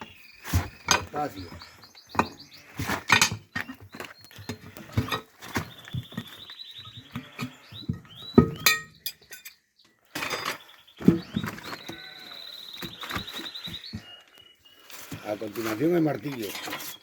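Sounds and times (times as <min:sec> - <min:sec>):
tyre tools clinking and knocking: 0:00.5 - 0:06.4, 0:07.0 - 0:12.0.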